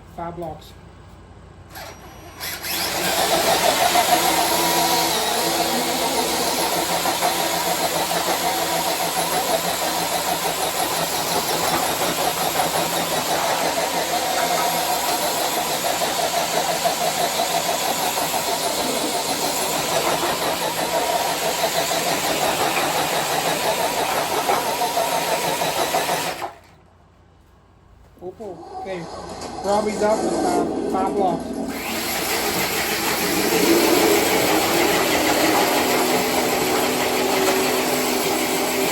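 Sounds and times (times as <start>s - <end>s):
electric motor and gears whining: 1.7s - 26.6s, 28.8s - 38.9s.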